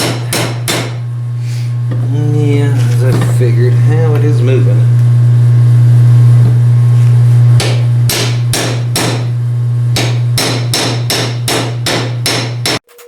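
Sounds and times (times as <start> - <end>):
loud steady low hum: 0.0 - 12.8
hammer blows on metal: 7.6 - 9.4, 10.0 - 12.8.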